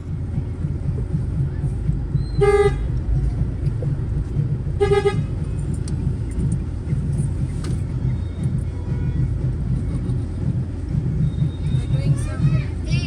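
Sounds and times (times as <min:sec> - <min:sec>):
engine and road rumble: 0:00.0 - 0:13.0
vehicle horn toots: 0:02.4 - 0:02.9, 0:04.8 - 0:05.3.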